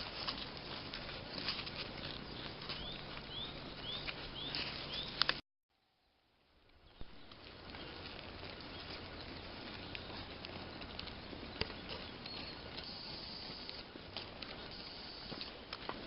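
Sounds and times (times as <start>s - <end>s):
light pattering and ticks: 0.0s - 5.4s, 6.6s - 16.0s
steady forest hiss: 12.8s - 16.0s.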